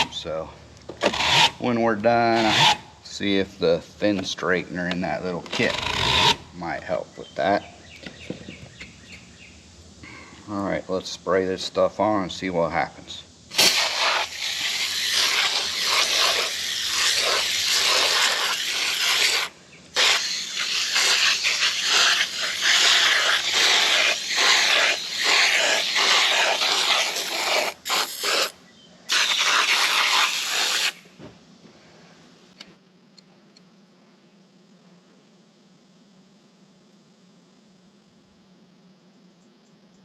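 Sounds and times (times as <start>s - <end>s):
aerosol can spraying: 13.5s - 31.1s.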